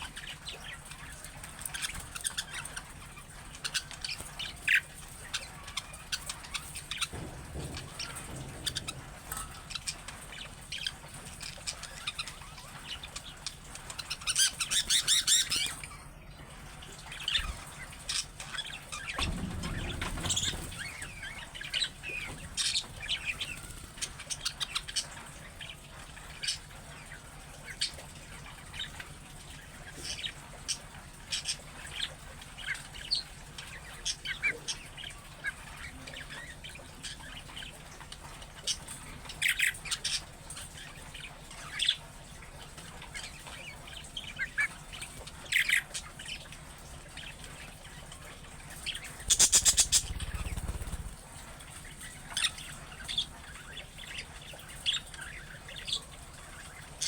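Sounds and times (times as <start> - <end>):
budgerigars chirping: 0.0 - 16.0, 48.8 - 57.0.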